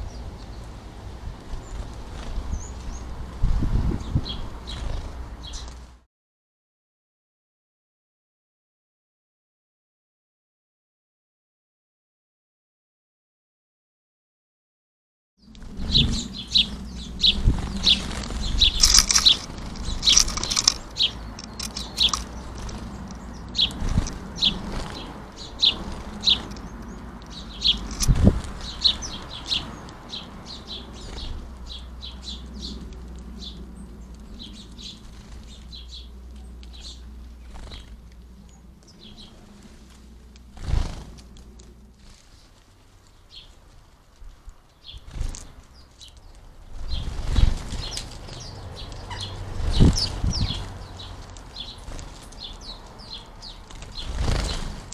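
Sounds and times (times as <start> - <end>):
sparrows chirping: 0.0 - 6.0, 15.4 - 54.9
birds landing or flapping thumps: 17.4 - 26.6, 40.0 - 42.6, 46.3 - 52.6, 53.6 - 54.9.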